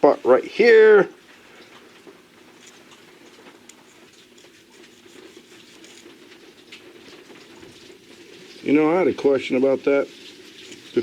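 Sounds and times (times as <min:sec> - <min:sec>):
scratching and clicks of metal model car: 0:02.0 - 0:08.7, 0:10.1 - 0:11.0.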